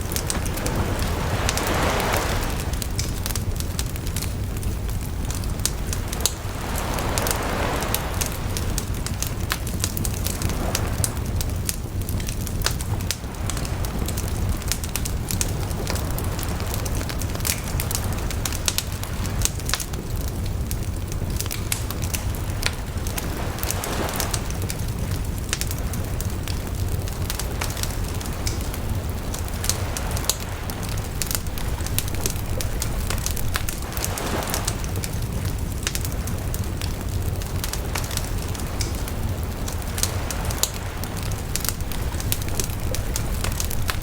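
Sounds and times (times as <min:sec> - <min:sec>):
bonfire crackling and popping: 0:00.0 - 0:44.0.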